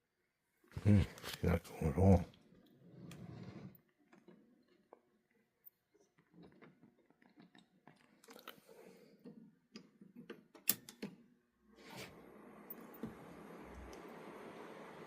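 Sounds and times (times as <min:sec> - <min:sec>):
clicks and light knocks of handling: 0:09.2 - 0:11.2.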